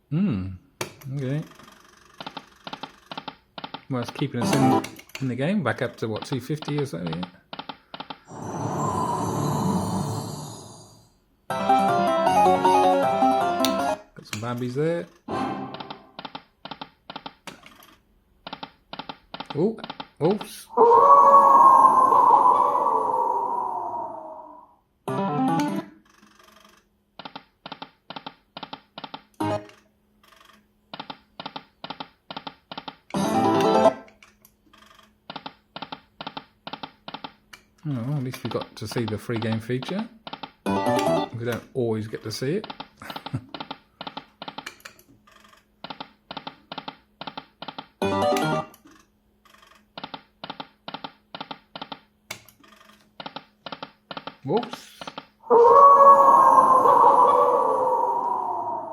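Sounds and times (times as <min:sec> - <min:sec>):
slot machine musical jingle: 0:11.5 - 0:14.0, 0:33.2 - 0:34.0.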